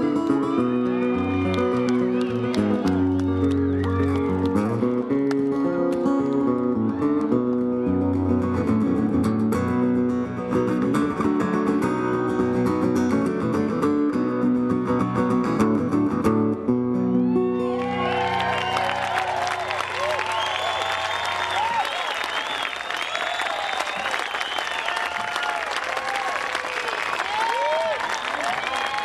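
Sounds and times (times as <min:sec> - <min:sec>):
audience whistling and cheering: 0:00.0 - 0:05.2, 0:17.1 - 0:29.0
country band playing: 0:00.0 - 0:19.6.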